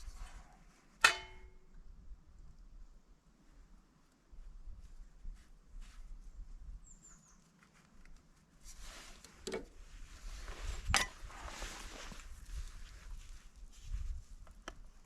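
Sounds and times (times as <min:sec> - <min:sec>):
faint rustling handling noises: 0:03.4 - 0:15.0.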